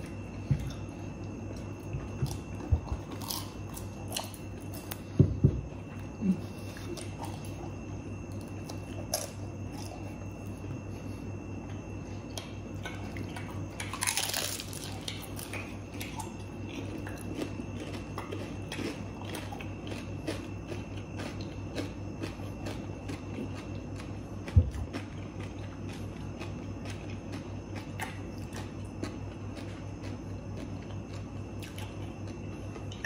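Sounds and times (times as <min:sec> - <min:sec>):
crunching and chewing crispy food: 0:00.0 - 0:33.0
steady low hum: 0:00.0 - 0:33.0.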